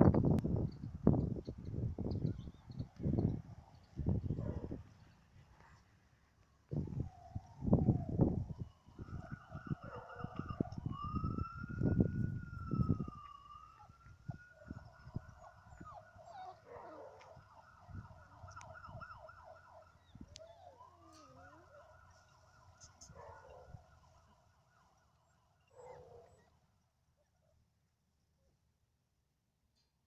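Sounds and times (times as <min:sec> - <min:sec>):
puppies whining: 0:12.6 - 0:17.3, 0:20.0 - 0:23.6
puppy whimper: 0:15.6 - 0:17.2, 0:20.2 - 0:21.9.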